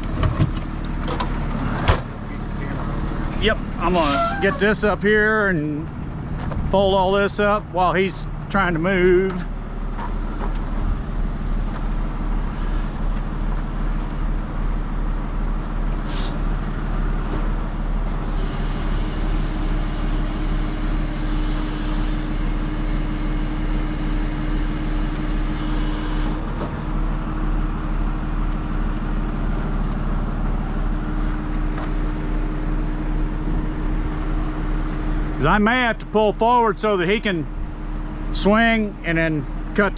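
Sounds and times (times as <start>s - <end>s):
diesel truck engine running: 0.0s - 39.9s
steady hum: 0.4s - 7.6s.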